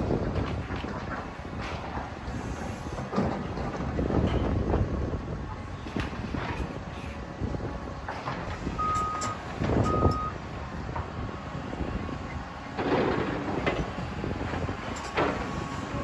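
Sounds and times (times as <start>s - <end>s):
demolition machinery rumble: 0.0s - 16.0s
reversing alarm beeps: 8.8s - 10.4s.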